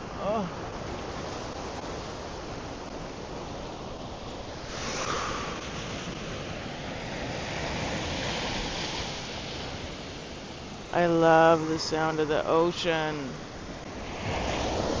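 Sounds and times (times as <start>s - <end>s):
waves breaking on beach: 0.0s - 15.0s.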